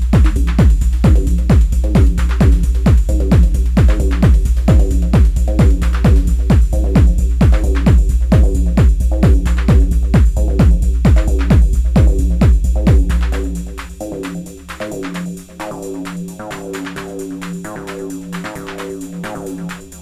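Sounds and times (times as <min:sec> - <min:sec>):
low bass tone: 0:00.0 - 0:14.7
techno kick drum: 0:00.0 - 0:20.0.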